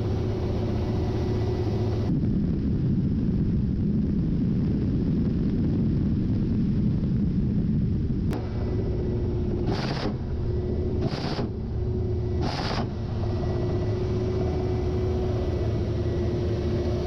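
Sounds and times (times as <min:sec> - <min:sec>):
helicopter engine and rotor drone: 0:00.0 - 0:02.2, 0:08.3 - 0:17.0
constant hum tone: 0:00.0 - 0:17.0.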